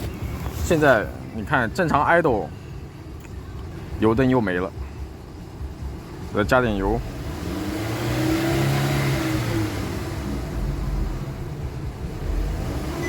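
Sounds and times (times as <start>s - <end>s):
car engine revving: 5.8s - 13.0s.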